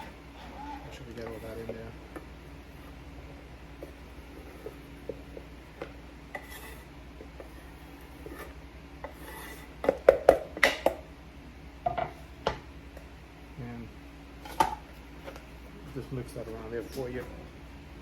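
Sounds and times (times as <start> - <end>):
scraping food off cutting board: 0.0 - 3.0, 3.8 - 5.5, 6.3 - 9.9.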